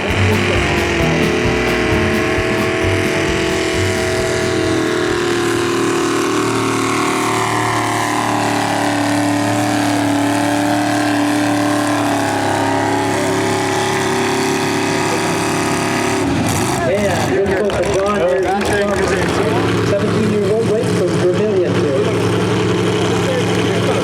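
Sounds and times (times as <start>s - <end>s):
tractor engines running hard: 0.0s - 24.0s.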